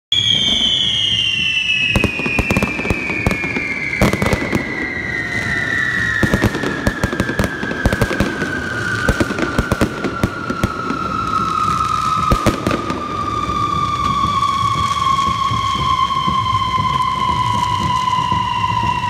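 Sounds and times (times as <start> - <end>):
falling firework whistle: 0.1 - 19.0
fireworks bangs and crackles: 0.1 - 19.0.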